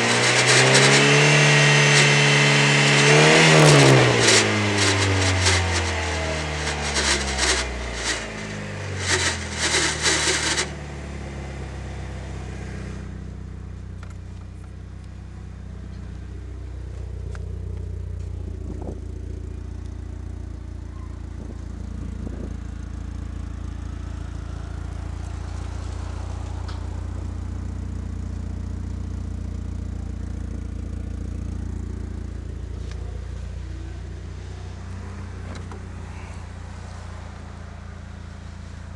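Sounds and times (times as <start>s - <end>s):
loud noise: 0.0s - 10.8s
car engine idling: 0.0s - 38.9s
car engine revving down: 0.0s - 38.9s.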